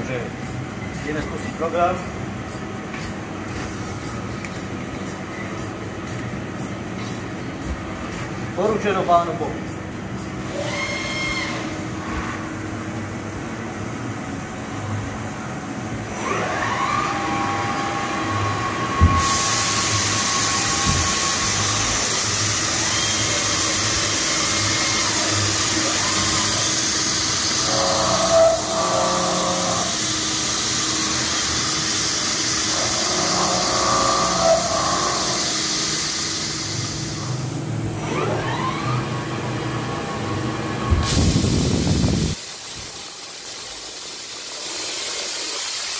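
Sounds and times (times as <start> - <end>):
cnc spindle winding up: 10.4 - 11.7, 16.1 - 42.4
loud spray hiss: 19.2 - 27.9, 41.1 - 45.9.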